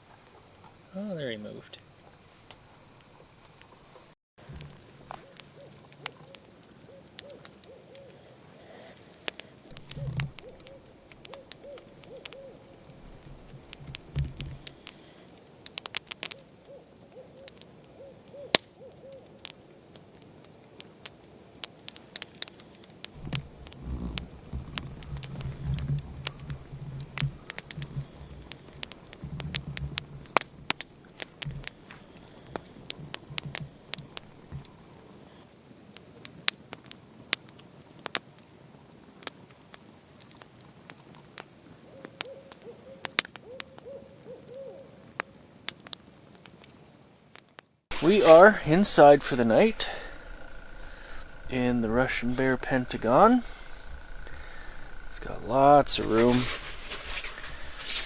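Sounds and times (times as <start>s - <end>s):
owl hooting: 5.1s - 15.3s, 16.2s - 19.4s, 41.9s - 45.0s, 47.9s - 58.0s
sharp clicks: 9.1s - 15.0s, 48.3s - 57.7s
low rumbling thumps: 23.2s - 31.8s, 48.0s - 58.0s.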